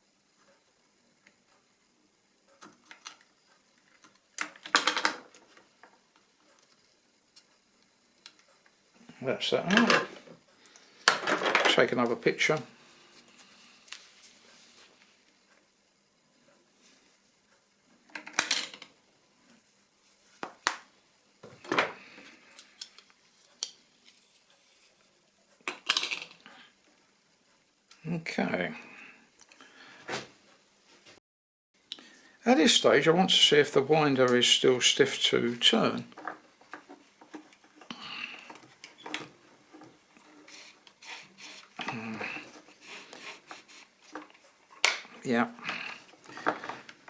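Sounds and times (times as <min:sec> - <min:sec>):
tools clattering on workbench: 0:09.7 - 0:10.2, 0:11.1 - 0:11.8.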